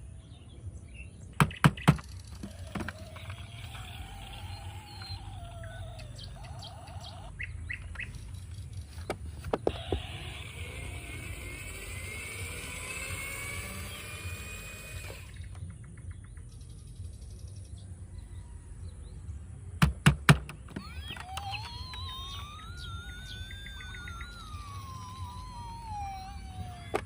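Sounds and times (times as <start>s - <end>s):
chirping gliding electronic tones: 1.5s - 19.8s, 20.5s - 27.0s
siren-like wail: 2.4s - 7.4s, 9.7s - 15.4s, 20.7s - 27.0s
sharp clicks: 19.8s - 27.0s.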